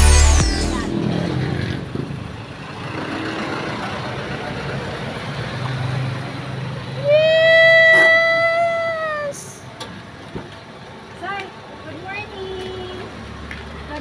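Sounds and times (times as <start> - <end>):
high-pitched tone: 0.0 - 1.4
road traffic: 0.0 - 14.0.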